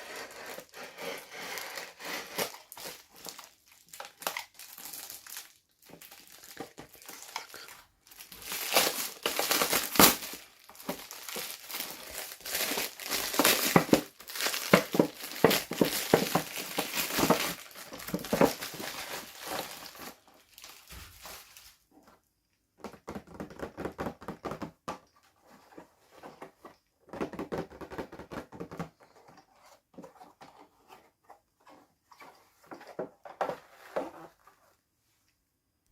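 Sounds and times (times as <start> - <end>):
packaging crinkling and tearing: 0.0 - 21.8.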